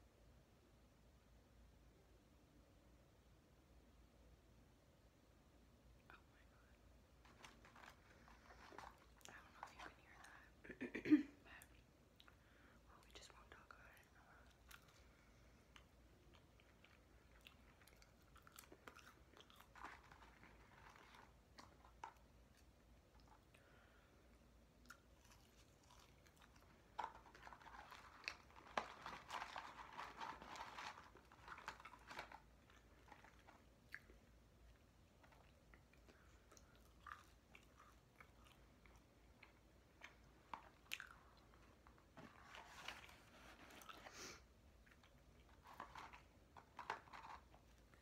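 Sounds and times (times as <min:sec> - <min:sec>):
paper bag crinkling: 0:07.2 - 0:09.9, 0:26.9 - 0:33.6
person chewing food: 0:14.5 - 0:48.0.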